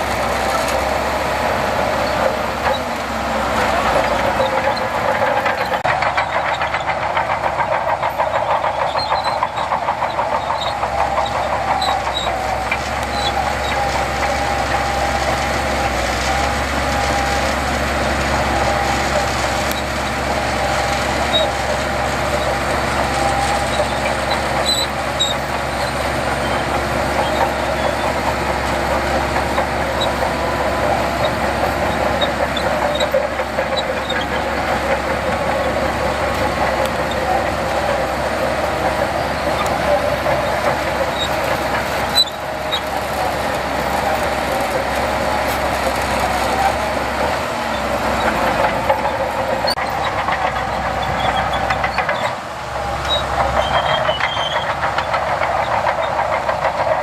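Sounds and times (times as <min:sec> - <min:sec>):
diesel earthmoving machinery: 0:00.0 - 0:57.0.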